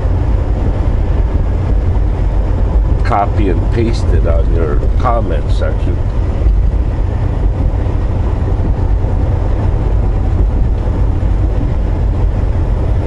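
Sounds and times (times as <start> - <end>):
truck engine and road drone: 0.0 - 13.0.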